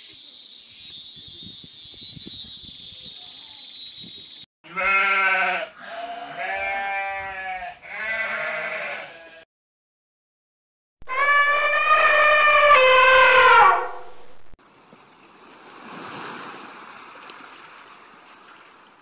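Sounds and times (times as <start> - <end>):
sheep bleating: 4.7 - 9.5.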